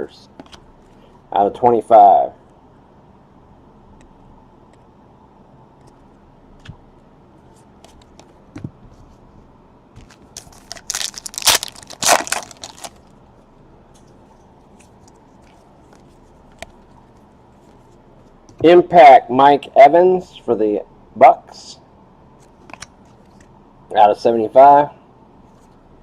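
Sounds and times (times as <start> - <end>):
plastic crinkling: 10.0 - 13.1.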